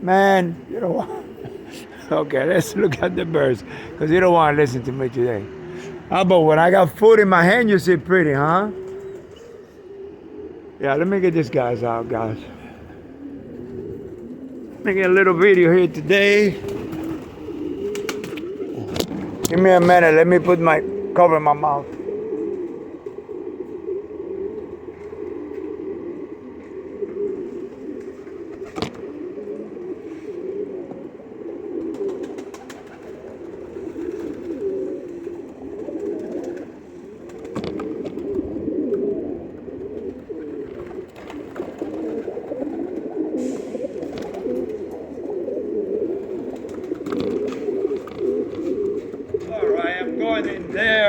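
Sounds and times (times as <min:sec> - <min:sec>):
pigeons cooing: 0:00.0 - 0:51.0.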